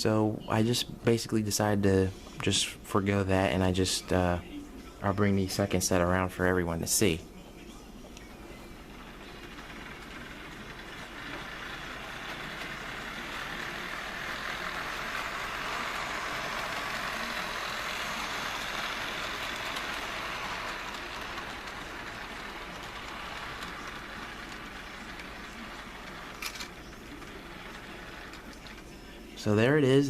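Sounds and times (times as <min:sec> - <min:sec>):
model train motor whirr: 0:08.8 - 0:29.6.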